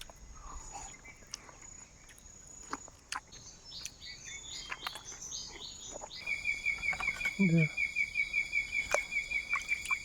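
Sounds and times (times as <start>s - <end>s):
high insect trill: 6.2s - 10.0s.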